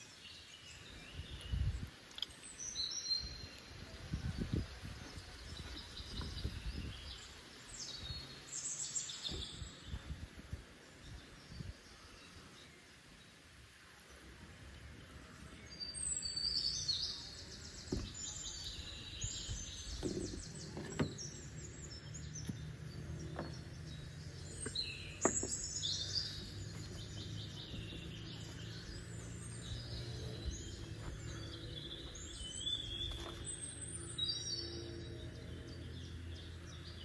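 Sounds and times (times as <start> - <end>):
birds chirping and singing: 0.0 - 14.2, 14.8 - 37.0.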